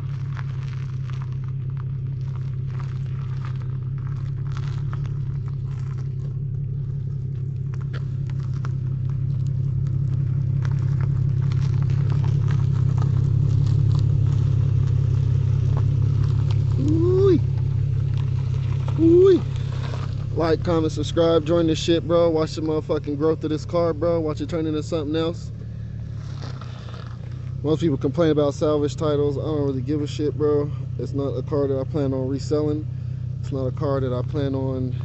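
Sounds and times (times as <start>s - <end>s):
crackling and rustling: 0.0s - 21.6s, 25.9s - 27.7s
car engine droning: 0.0s - 35.0s.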